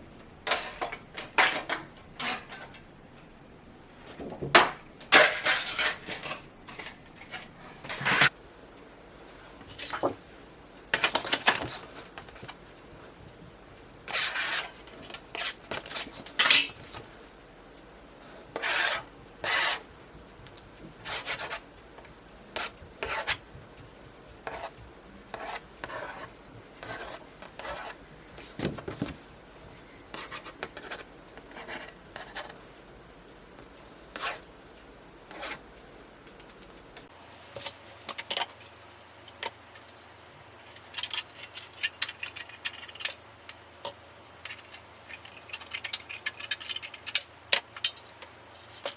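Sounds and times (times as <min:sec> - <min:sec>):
metal rubbing and scraping: 0:05.2 - 0:08.4, 0:14.1 - 0:17.1, 0:18.5 - 0:19.9.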